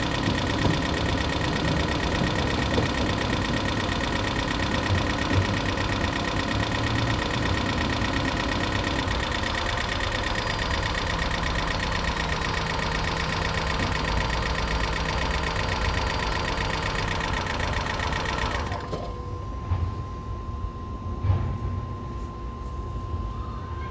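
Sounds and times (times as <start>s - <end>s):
car engine ticking: 0.0s - 19.1s.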